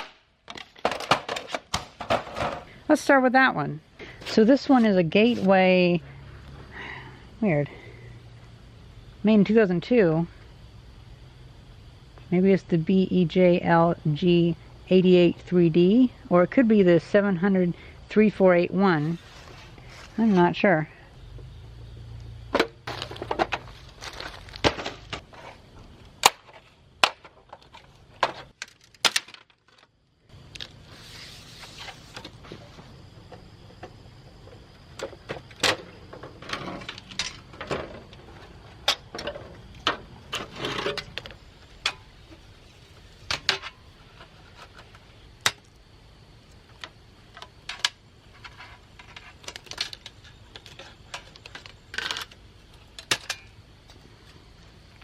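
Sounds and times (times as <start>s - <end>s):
plastic and metal parts clattering: 0.5s - 2.7s, 22.6s - 25.6s, 26.3s - 29.9s.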